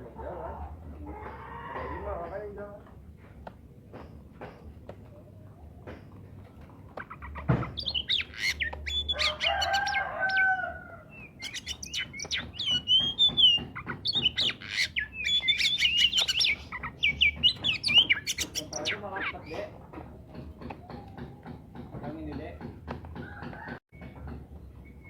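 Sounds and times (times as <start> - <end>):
bird singing whistles and chirps: 7.4 - 19.6.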